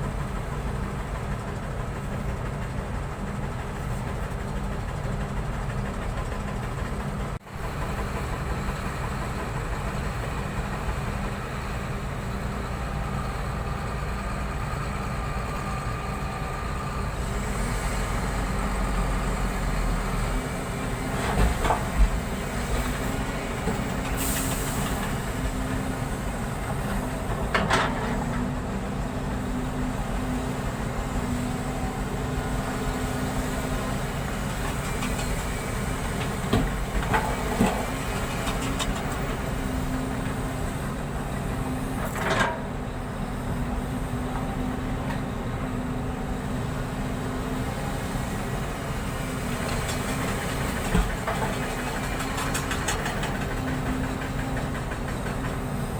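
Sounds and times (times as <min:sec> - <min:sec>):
heavy vehicle engine rumble: 0:00.0 - 0:55.9
clunks: 0:42.0 - 0:42.8.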